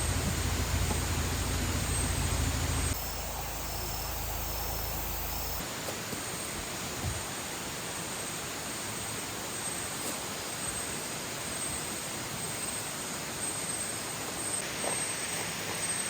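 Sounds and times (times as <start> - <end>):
low rumble: 0.0 - 5.6
steady hiss: 0.0 - 16.0
insect chirps: 1.9 - 5.6.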